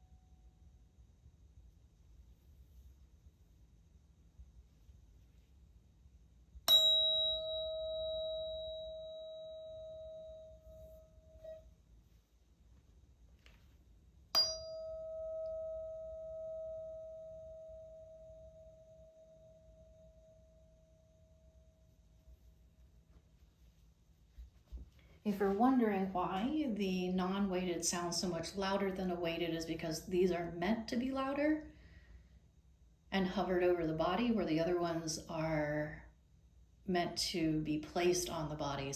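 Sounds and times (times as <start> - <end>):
tuning fork ringing: 6.7 - 11.8, 14.3 - 22.2.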